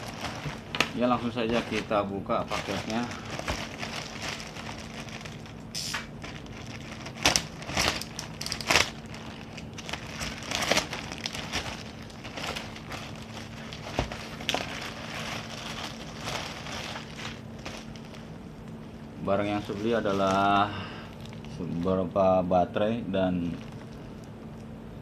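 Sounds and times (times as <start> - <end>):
plastic wrapping crinkling: 0.0 - 24.6
faint steady hum: 0.0 - 25.0.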